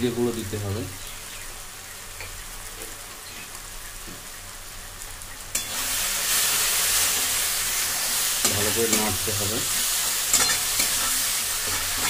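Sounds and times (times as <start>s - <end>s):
masala sizzling in a pan: 0.0s - 12.0s
metal spatula scraping pan: 9.8s - 12.0s.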